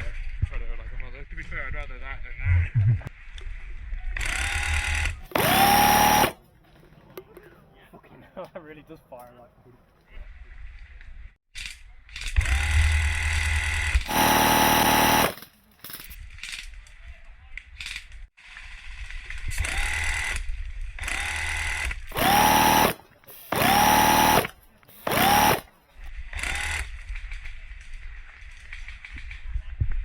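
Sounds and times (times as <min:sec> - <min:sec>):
electric motor whining: 0:04.2 - 0:06.4, 0:13.4 - 0:15.4, 0:21.0 - 0:25.7
airsoft minigun firing bursts: 0:04.4 - 0:06.4, 0:14.0 - 0:15.4, 0:21.1 - 0:25.8.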